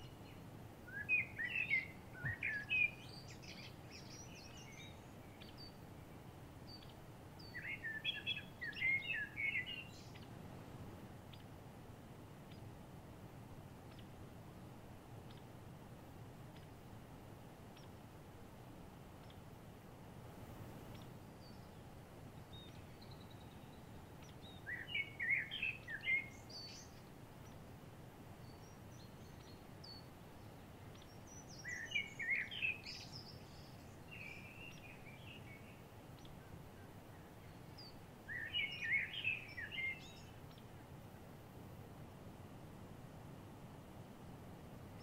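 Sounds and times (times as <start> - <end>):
songbird warbling: 0.0 - 6.1, 6.7 - 10.3, 11.3 - 11.5, 15.2 - 15.5, 17.8 - 18.0, 20.9 - 21.8, 22.5 - 27.6, 28.4 - 40.8
steady background noise: 0.0 - 45.0.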